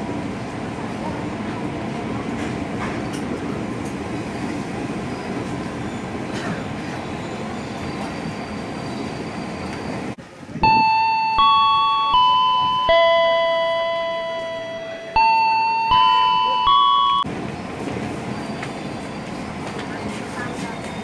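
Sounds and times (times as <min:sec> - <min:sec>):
train wheels rumbling: 0:00.0 - 0:10.2
bell-like chime: 0:10.6 - 0:17.3.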